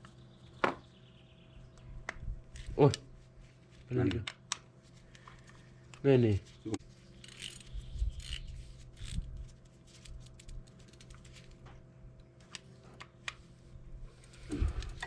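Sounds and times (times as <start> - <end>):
metal parts clicking: 7.2 - 9.3.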